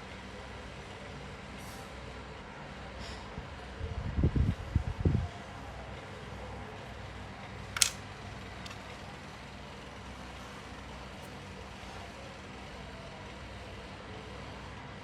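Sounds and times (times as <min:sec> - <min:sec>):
sharp click: 0:07.8 - 0:08.0.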